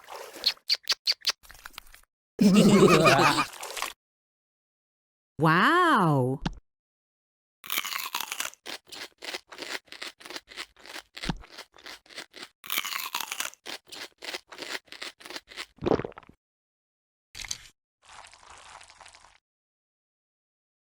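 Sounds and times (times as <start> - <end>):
crunchy chewing: 7.6 - 15.8.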